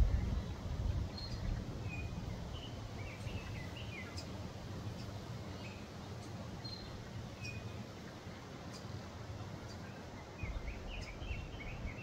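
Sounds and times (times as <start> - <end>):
steady low rumble: 0.0 - 1.7
songbird chirping: 9.6 - 12.0.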